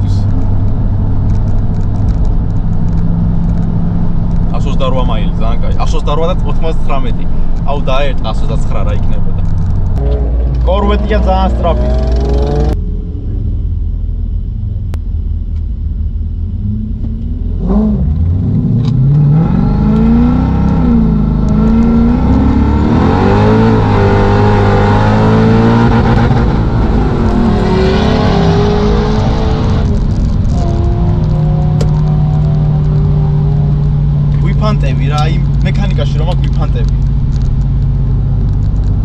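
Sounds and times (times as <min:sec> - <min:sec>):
car engine revving: 0:00.0 - 0:15.0, 0:15.9 - 0:39.0.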